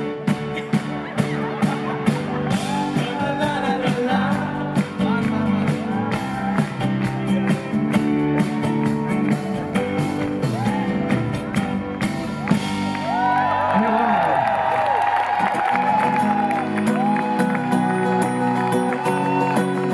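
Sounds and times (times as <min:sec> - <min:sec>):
strummed guitar: 0:00.0 - 0:13.2, 0:15.4 - 0:19.9
band with steady beat: 0:00.0 - 0:13.3
person singing: 0:02.5 - 0:08.0.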